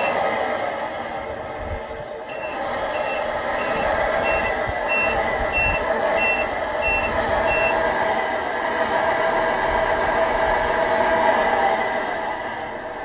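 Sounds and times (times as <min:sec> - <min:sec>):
truck reverse warning beeps: 0:00.0 - 0:00.3, 0:02.3 - 0:07.9
engine drone: 0:00.0 - 0:13.0.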